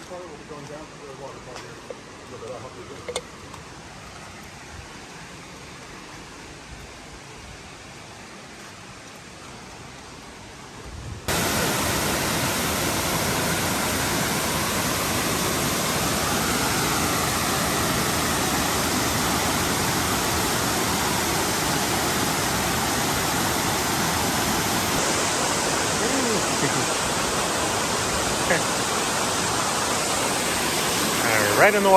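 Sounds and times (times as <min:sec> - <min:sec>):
waterfall rushing: 0:11.3 - 0:31.9.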